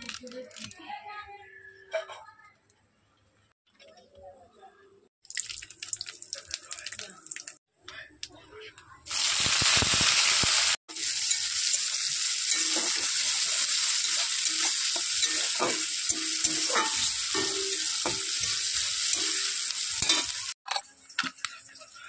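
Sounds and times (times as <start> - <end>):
onions sizzling in hot oil: 9.1 - 20.6
spatula scraping a wok: 9.4 - 20.6.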